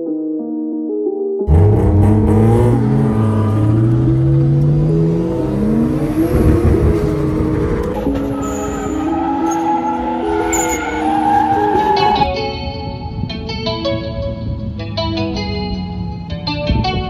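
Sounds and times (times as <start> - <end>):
car engine accelerating: 1.5 - 12.3.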